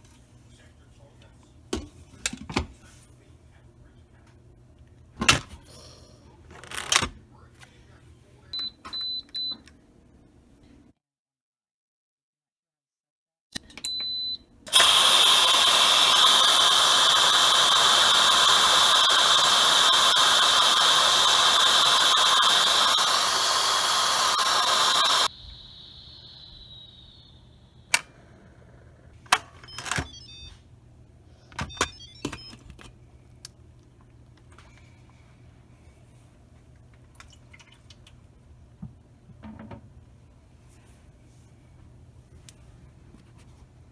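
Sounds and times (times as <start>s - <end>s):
pressure cooker beep: 8.6s - 9.6s, 13.8s - 28.3s, 29.7s - 30.6s, 31.6s - 32.6s
steam valve hissing: 14.7s - 28.4s.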